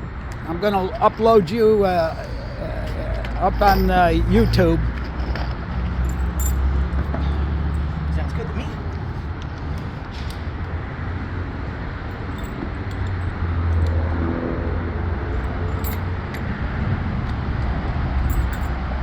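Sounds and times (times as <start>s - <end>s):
light metallic clinks: 2.5s - 8.0s, 12.3s - 13.4s, 15.7s - 16.4s, 18.2s - 18.8s.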